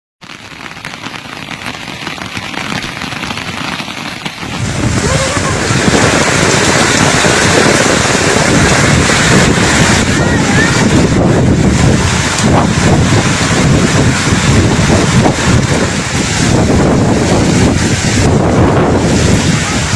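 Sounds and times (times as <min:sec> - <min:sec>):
wind buffeting microphone: 0:04.3 - 0:19.9.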